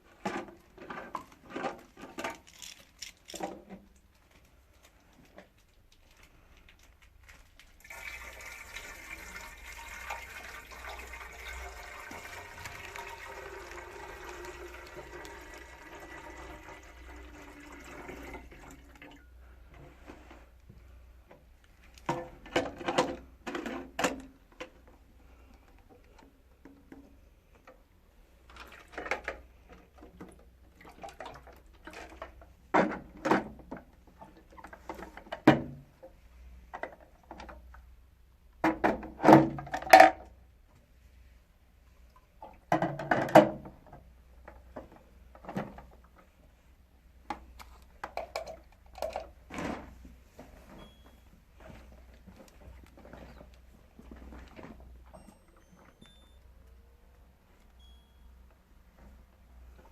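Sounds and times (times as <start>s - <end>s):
water running into container: 7.8s - 19.2s.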